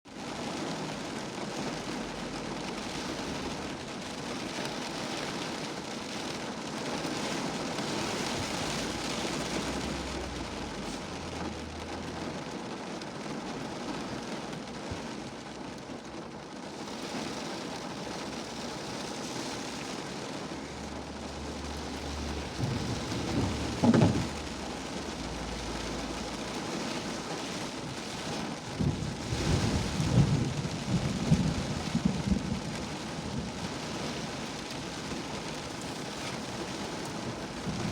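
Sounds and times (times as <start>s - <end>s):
rain falling: 0.1s - 37.9s
low rumble of thunder: 20.5s - 37.9s.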